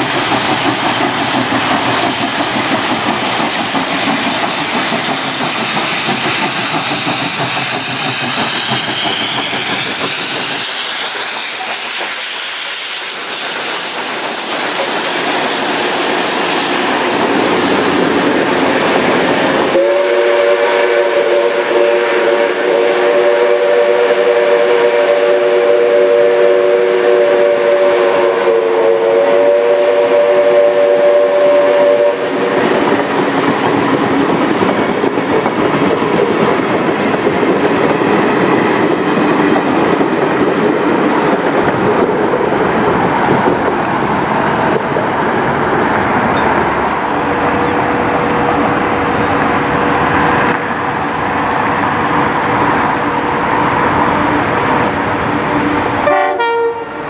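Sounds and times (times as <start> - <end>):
chord of steady horn tones: 19.7 - 32.3, 56.0 - 57.0
wheels clicking over rail joints: 32.6 - 43.6.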